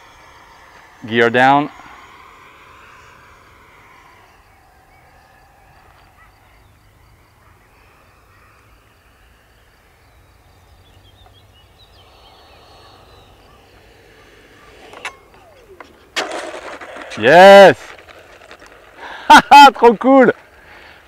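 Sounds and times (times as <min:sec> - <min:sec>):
high bird chirps: 0:01.7 - 0:16.2.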